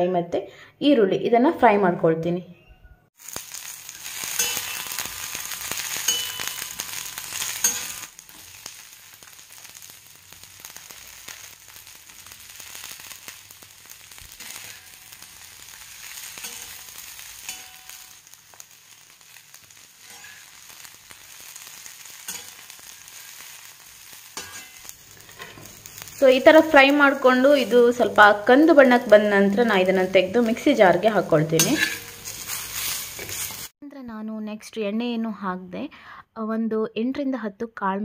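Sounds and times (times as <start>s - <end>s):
spatula stirring in a wok: 3.2s - 28.3s, 31.6s - 33.7s
food sizzling in a wok: 3.2s - 33.8s.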